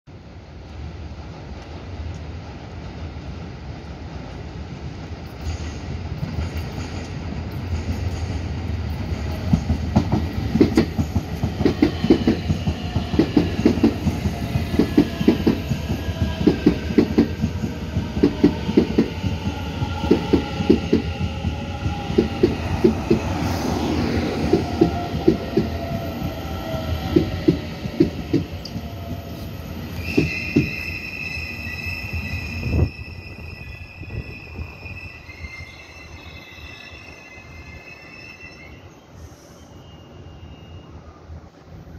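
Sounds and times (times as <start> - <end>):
train rumble: 0.1 - 34.9
falling train whine: 0.1 - 41.9
high brake squeal: 28.8 - 41.2.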